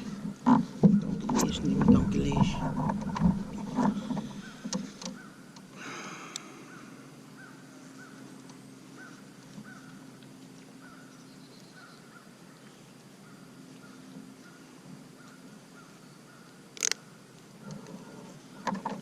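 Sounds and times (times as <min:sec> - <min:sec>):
bird calling: 0:00.0 - 0:10.1.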